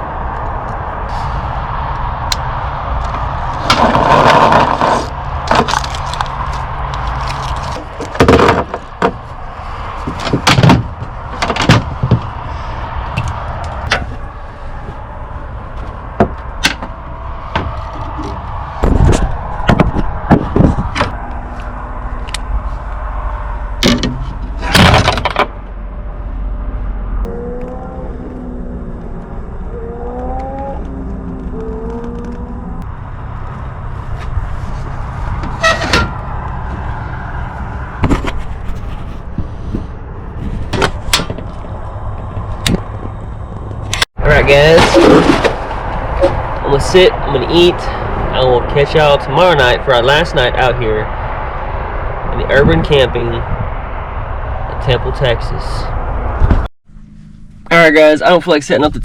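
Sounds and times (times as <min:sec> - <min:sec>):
steady low rumble: 0:00.0 - 0:59.0
objects knocking and scraping: 0:03.6 - 0:09.2, 0:38.0 - 0:41.7, 0:44.5 - 0:46.5.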